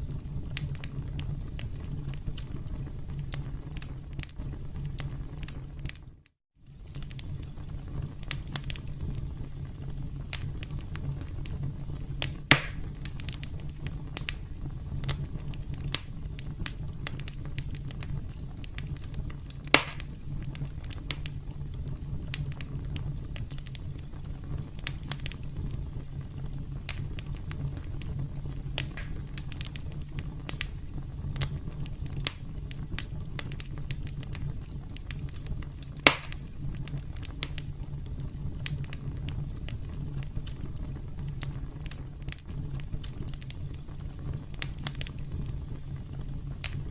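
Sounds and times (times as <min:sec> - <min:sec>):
loud fire pops: 0:00.0 - 0:46.9
wood fire crackling: 0:00.0 - 0:46.9
low rumble: 0:25.4 - 0:32.7.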